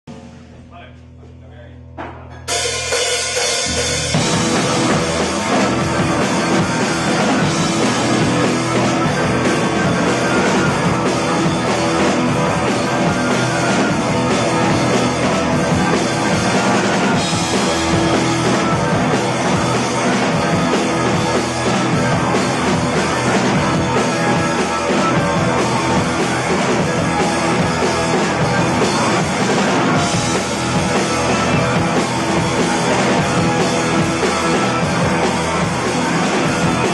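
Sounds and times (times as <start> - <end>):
loud rock music: 0.0 - 36.9.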